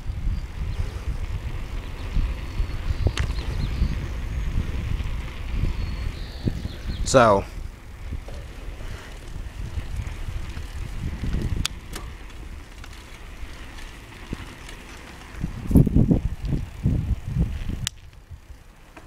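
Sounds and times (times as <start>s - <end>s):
wind rumbling on microphone: 0.0s - 19.0s
sharp clicks: 11.5s - 13.0s.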